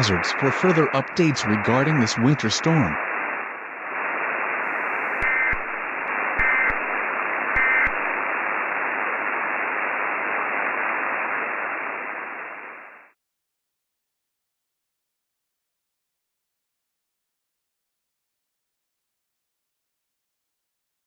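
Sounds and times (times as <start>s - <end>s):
radio static hiss: 0.0s - 13.2s
buzzy data bursts: 4.7s - 8.8s.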